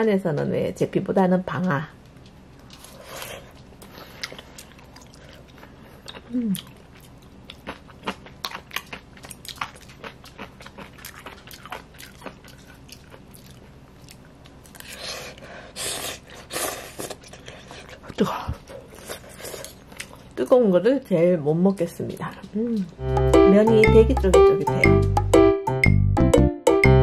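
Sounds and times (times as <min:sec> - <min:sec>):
chewing with mouth clicks: 0:02.0 - 0:20.4.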